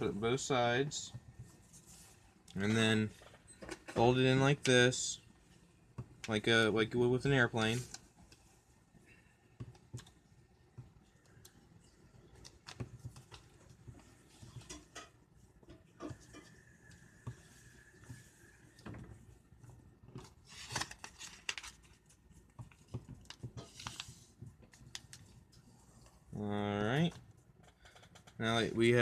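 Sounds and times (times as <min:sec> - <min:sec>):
paper rustling and crinkling: 0:20.1 - 0:25.4.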